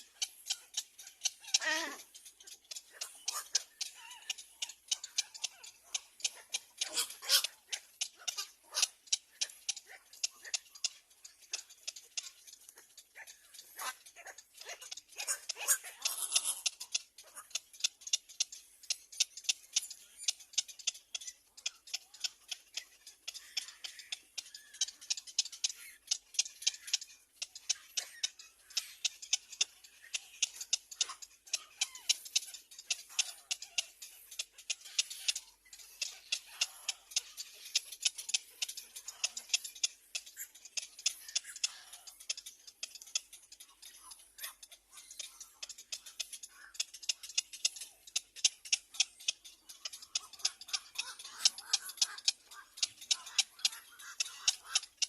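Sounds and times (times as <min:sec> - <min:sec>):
faint higher bird calls: 0:00.0 - 0:55.0
small birds chipping: 0:00.0 - 0:55.0.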